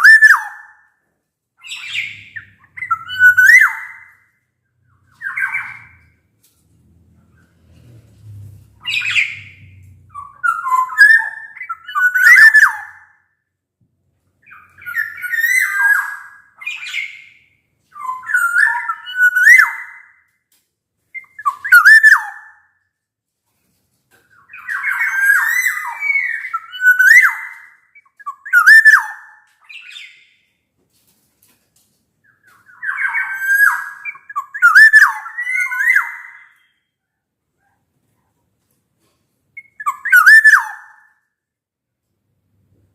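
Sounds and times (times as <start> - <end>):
oriole whistles and scratchy calls: 0.0 - 0.9, 1.6 - 4.3, 4.9 - 6.2, 8.8 - 13.2, 14.4 - 20.3, 21.1 - 22.7, 24.2 - 30.6, 32.2 - 37.0, 39.6 - 41.2.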